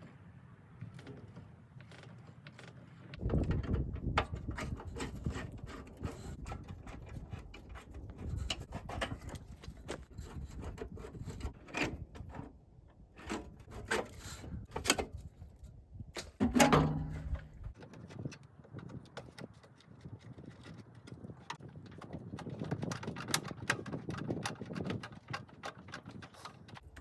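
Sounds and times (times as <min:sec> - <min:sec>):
hand tools clicking and knocking: 0:16.2 - 0:27.0.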